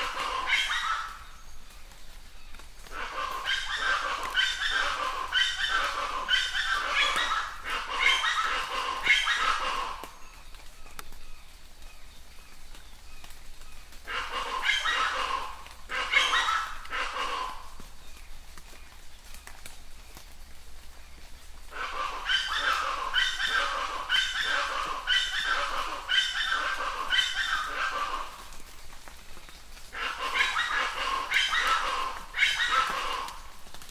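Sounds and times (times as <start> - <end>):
rain falling: 0.0 - 33.9
bird calling repeated notes: 21.8 - 28.4.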